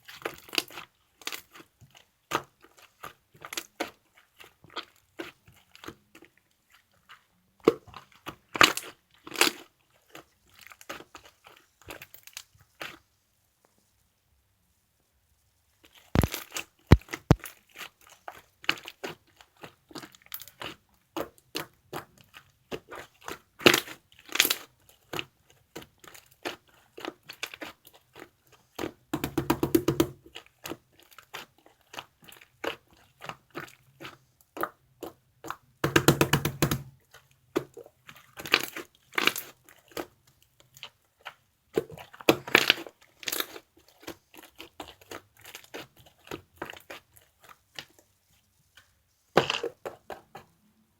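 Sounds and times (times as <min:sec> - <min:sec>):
slime squished by hand: 0:15.9 - 0:48.0, 0:48.7 - 0:50.5.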